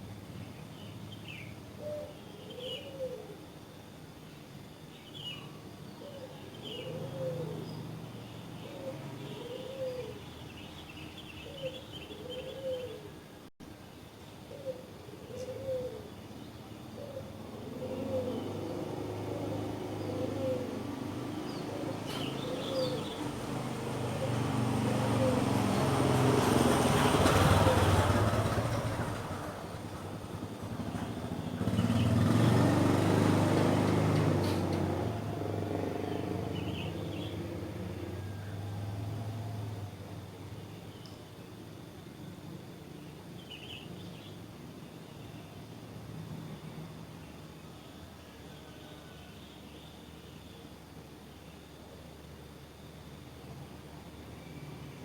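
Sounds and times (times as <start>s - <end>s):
small birds twittering: 0.4s - 3.4s, 4.3s - 13.3s, 14.2s - 28.8s, 30.3s - 38.7s, 40.5s - 51.8s
dove cooing: 1.8s - 3.4s, 6.0s - 7.6s, 8.6s - 10.2s, 11.4s - 13.2s, 14.5s - 16.1s, 17.0s - 21.0s, 21.6s - 25.9s, 27.4s - 28.2s
vehicle engine passing: 18.0s - 40.3s.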